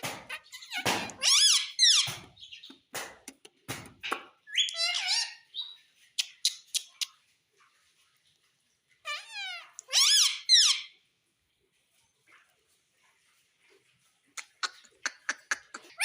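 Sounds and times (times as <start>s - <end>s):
parrot squawking and warbling: 0.2s - 2.1s, 4.0s - 5.8s, 9.0s - 11.0s, 14.4s - 16.0s.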